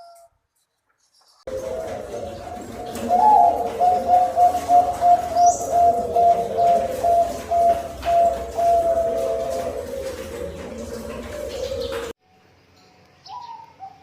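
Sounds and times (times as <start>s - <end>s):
dove cooing: 1.5s - 12.2s
high bird chirp: 13.2s - 14.0s.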